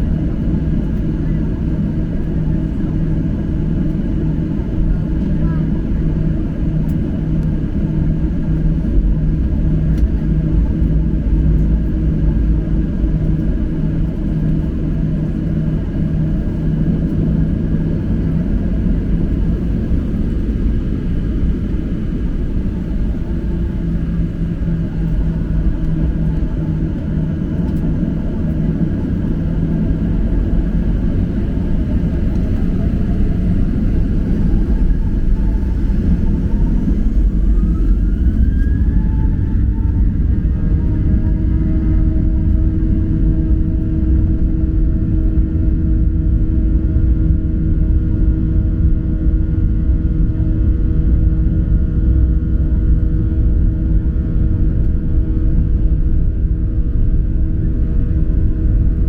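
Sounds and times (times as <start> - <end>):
jet engine cabin rumble: 0.0 - 59.0
engine whining tones: 18.5 - 42.1.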